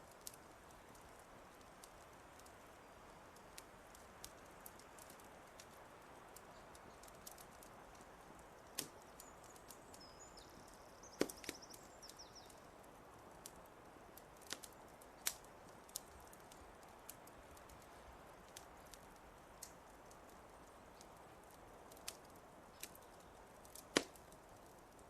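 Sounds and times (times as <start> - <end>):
soft hiss: 0.0 - 25.0
wood fire crackling and popping: 0.0 - 25.0
small bird twittering: 9.0 - 12.6.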